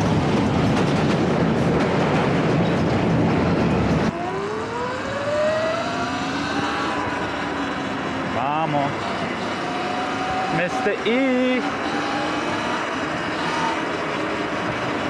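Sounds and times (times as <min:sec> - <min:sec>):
loud rushing noise: 0:00.0 - 0:15.0
electric bike motor whining: 0:04.2 - 0:08.3, 0:09.0 - 0:14.9.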